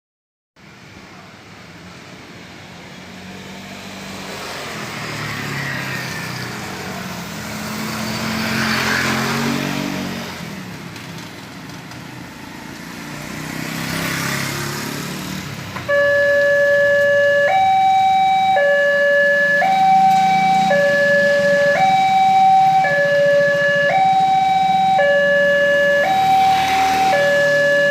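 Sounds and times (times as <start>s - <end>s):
vehicles passing on wet road: 0.6s - 27.9s
level crossing alarm: 15.8s - 27.9s.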